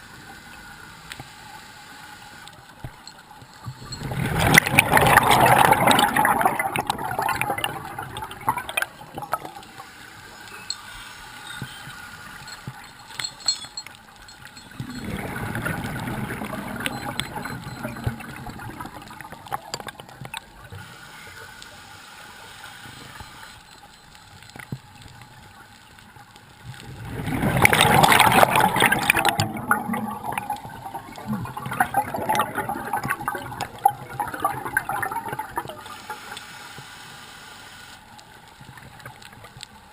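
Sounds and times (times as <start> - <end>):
underwater bubbles gurgling: 2.4 - 10.8, 14.1 - 21.7, 22.8 - 37.2
small clicks: 22.8 - 26.9.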